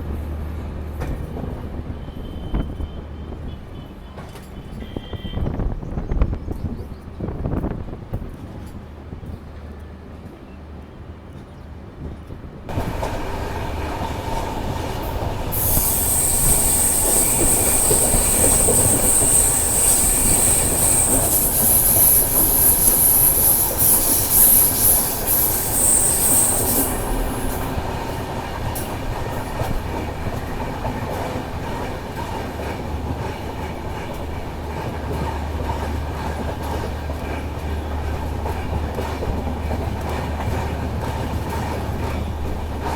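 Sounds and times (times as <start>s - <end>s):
train rumbling on rails: 0.0s - 42.9s
train wheel squeal: 14.0s - 27.8s.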